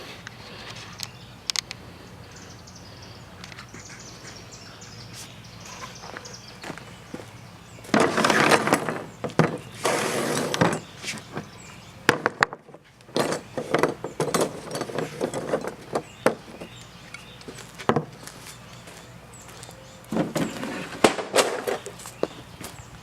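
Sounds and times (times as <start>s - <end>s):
rustling and scraping: 5.1s - 22.8s
knocks and clinks of wood and metal: 7.8s - 11.5s, 12.1s - 18.3s.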